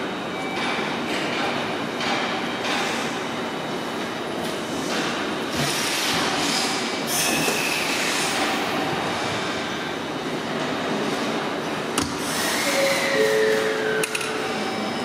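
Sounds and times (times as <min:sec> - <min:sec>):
train and station noise: 0:00.0 - 0:15.0
train doors closing: 0:04.5 - 0:15.0.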